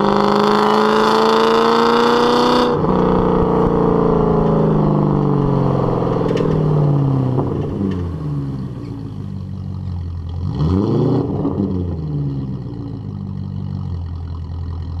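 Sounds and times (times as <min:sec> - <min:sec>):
car engine idling: 0:02.8 - 0:10.7, 0:11.7 - 0:15.0.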